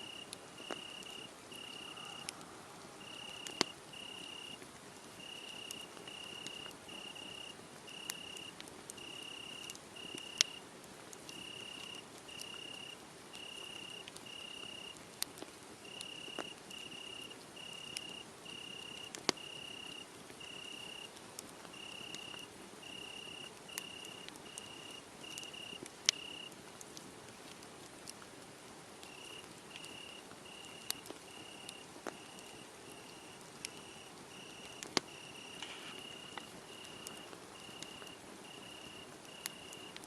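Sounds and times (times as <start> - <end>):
cricket chirping in trills: 0.0 - 4.6, 5.2 - 10.6, 15.9 - 21.1, 21.8 - 26.5, 29.1 - 40.0
wood fire crackling and popping: 0.1 - 40.0.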